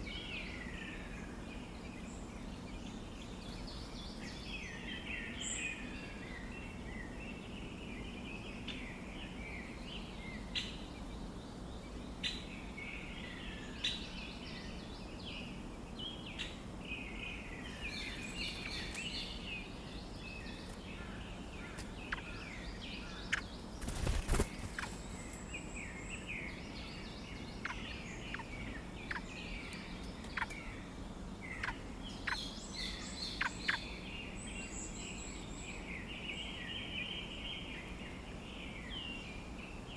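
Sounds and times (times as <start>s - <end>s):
nestlings begging chirps: 8.6s - 39.9s.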